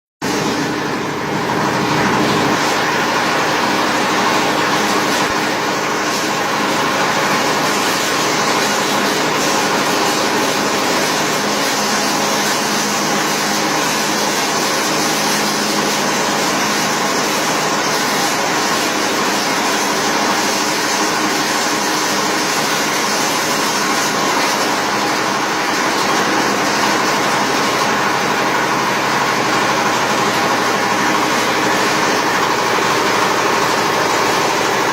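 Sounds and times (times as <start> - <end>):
chopper machine droning: 0.2 - 21.0.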